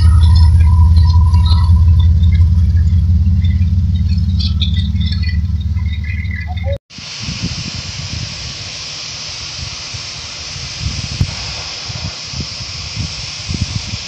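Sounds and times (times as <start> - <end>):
wheel squeals and clanks: 0.0 - 6.8
freight train heavy rumble: 0.0 - 14.0.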